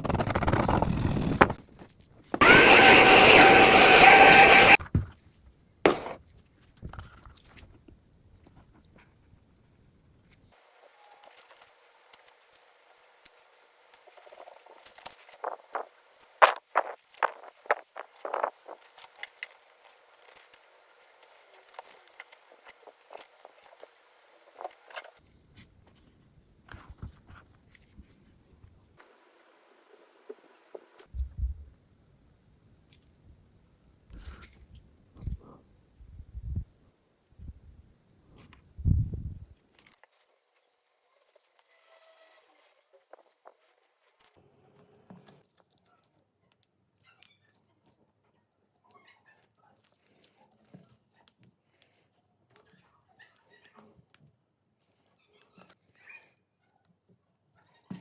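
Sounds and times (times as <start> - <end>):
small power tool running: 0.0 - 1.6, 2.4 - 4.8, 5.9 - 6.2
sharp clicks: 2.4 - 4.8
handling noise: 5.9 - 6.2.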